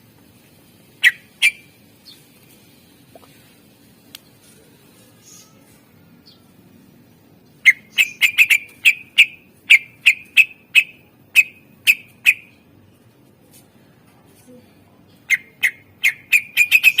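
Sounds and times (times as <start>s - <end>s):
bird whistling sharp notes: 7.7s - 8.6s.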